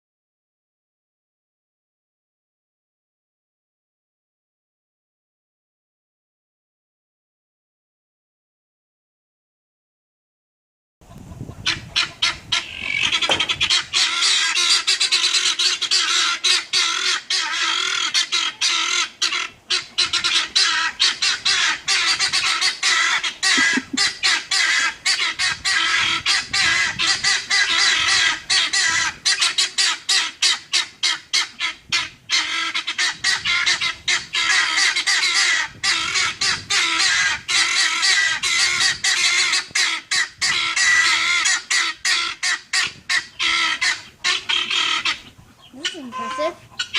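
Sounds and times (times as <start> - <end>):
guineafowl squawking: 11.1 - 46.9.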